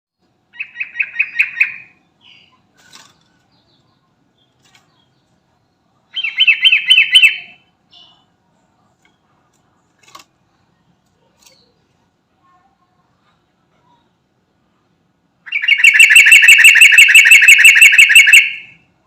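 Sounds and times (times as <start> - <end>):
bird singing bubbling phrases: 6.1 - 8.2, 15.5 - 18.8.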